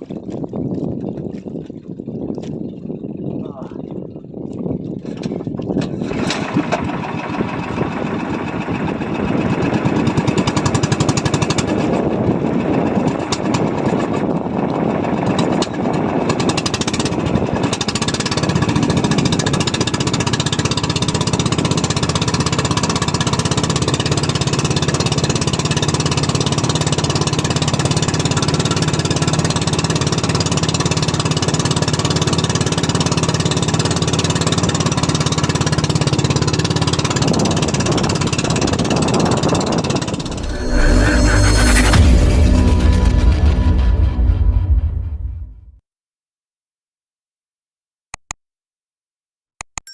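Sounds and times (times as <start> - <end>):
boat engine chugging: 1.0 - 40.3.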